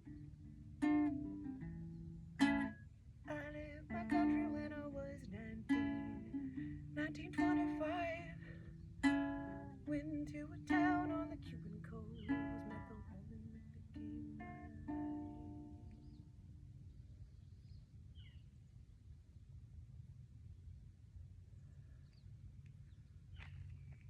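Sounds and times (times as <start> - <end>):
plucked string instrument strumming: 0.0 - 16.6.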